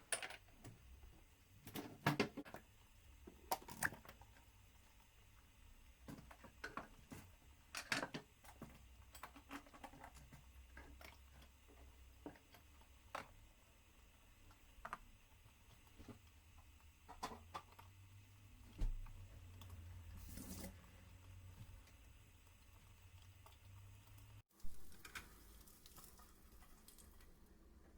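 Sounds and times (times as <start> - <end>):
small objects clicking and tapping: 6.0 - 13.5, 21.6 - 27.3.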